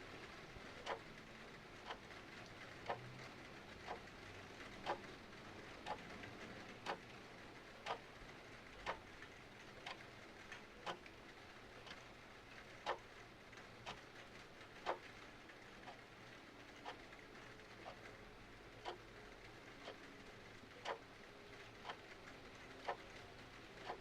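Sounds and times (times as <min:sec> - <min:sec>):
faint hiss of rain: 0:00.0 - 0:24.0
clock ticking: 0:00.8 - 0:01.1, 0:02.8 - 0:03.0, 0:03.8 - 0:04.1, 0:04.8 - 0:05.1, 0:05.8 - 0:06.0, 0:07.8 - 0:08.0, 0:08.8 - 0:11.2, 0:12.7 - 0:13.1, 0:13.8 - 0:15.1, 0:16.8 - 0:17.2, 0:17.8 - 0:19.1, 0:19.8 - 0:20.1, 0:20.7 - 0:24.0.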